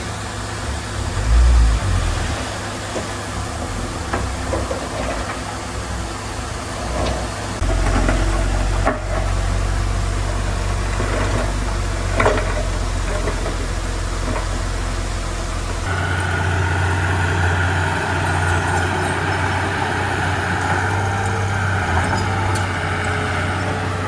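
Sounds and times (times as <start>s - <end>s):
diesel engine of heavy machinery: 0.0s - 24.0s.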